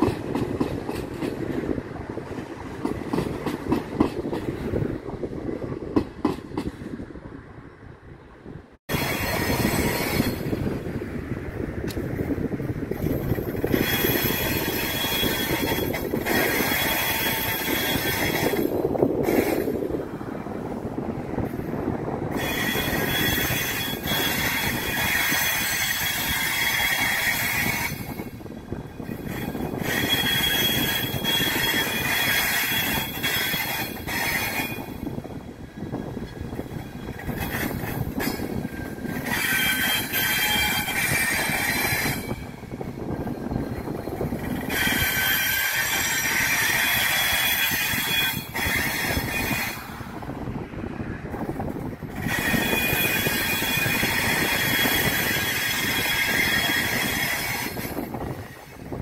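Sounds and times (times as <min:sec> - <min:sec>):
train wheels squealing: 0:08.9 - 0:10.7, 0:12.9 - 0:19.8, 0:22.3 - 0:35.2, 0:35.8 - 0:50.0, 0:52.1 - 0:58.9.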